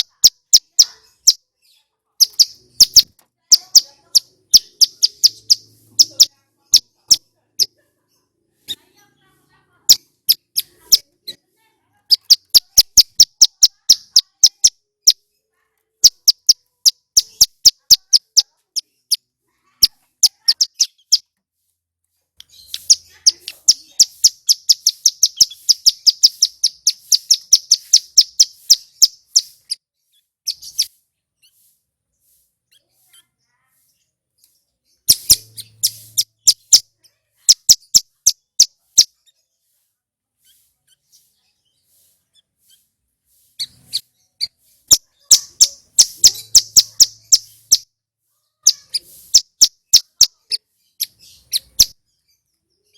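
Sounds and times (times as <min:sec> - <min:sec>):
bird singing sharp high notes: 0:02.2 - 0:07.2, 0:22.6 - 0:29.8, 0:35.0 - 0:36.8, 0:44.9 - 0:47.9.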